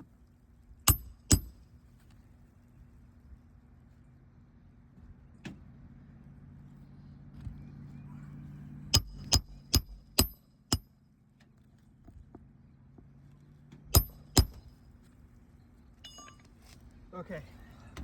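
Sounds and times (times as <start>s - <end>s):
hammer striking nails: 0.9s - 1.6s, 9.0s - 10.9s, 13.9s - 14.7s
steady low hum: 2.7s - 10.9s, 13.9s - 15.2s.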